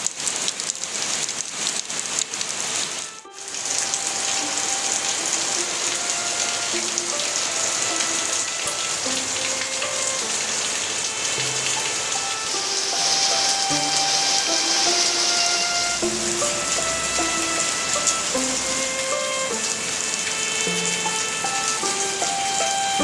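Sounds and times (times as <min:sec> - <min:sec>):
steady rain falling: 0:00.0 - 0:23.0
faint short musical notes: 0:11.3 - 0:23.0.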